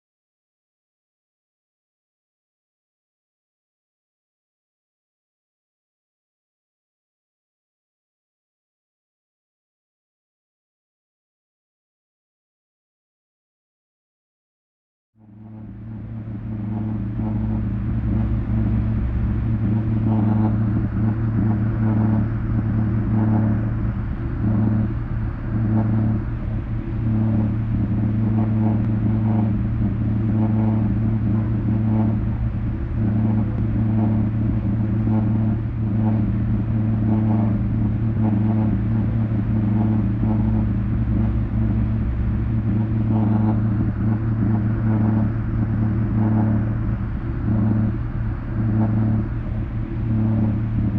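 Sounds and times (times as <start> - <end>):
low subwoofer drone: 15.2 - 50.9
soft uneven pulsing: 15.2 - 50.9.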